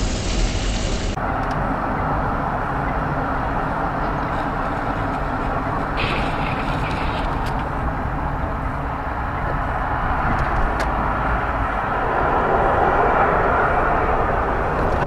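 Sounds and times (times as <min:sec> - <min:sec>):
high hiss: 0:00.0 - 0:01.2
car road and engine noise: 0:00.0 - 0:15.0.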